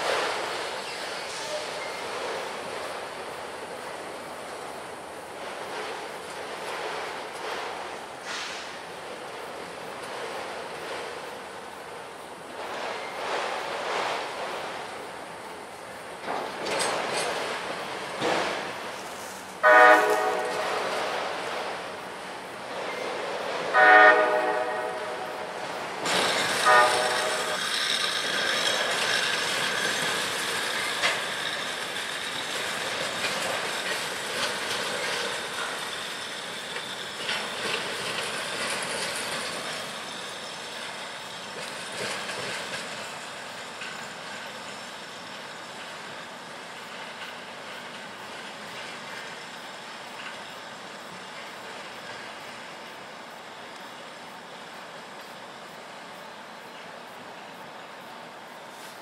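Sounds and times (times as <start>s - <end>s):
freight cars rolling past: 0.0s - 59.0s
locomotive air horn blasts: 19.6s - 21.1s, 23.7s - 25.6s, 26.6s - 27.6s.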